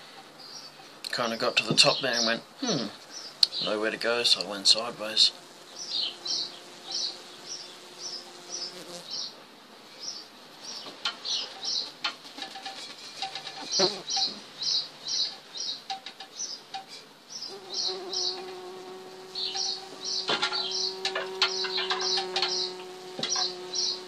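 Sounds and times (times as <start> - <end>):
small bird chirping: 5.7 - 9.4, 10.0 - 12.0, 12.6 - 24.0.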